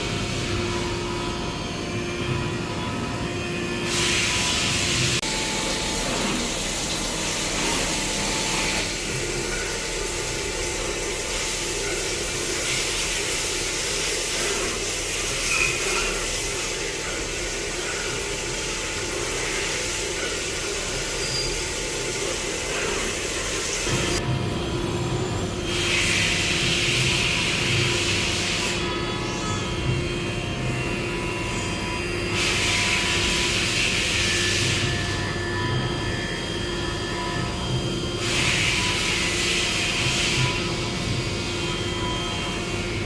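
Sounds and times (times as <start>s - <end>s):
faint machine hum: 0.0s - 43.0s
machine hissing: 3.8s - 24.2s.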